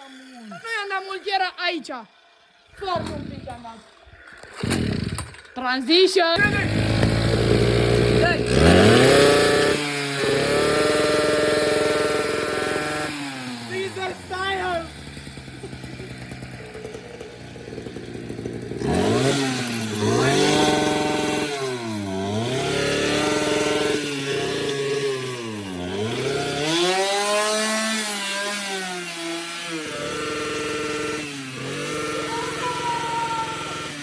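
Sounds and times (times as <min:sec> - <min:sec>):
small two-stroke engine revving: 0:00.0 - 0:05.6, 0:06.3 - 0:34.0.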